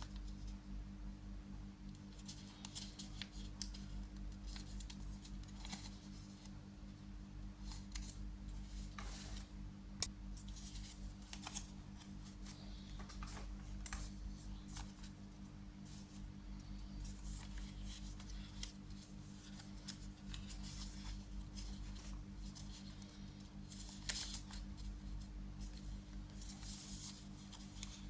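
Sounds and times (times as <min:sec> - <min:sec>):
steady low hum: 0:00.0 - 0:28.0
paper rustling and crinkling: 0:02.1 - 0:06.6, 0:10.4 - 0:15.2, 0:15.8 - 0:28.0.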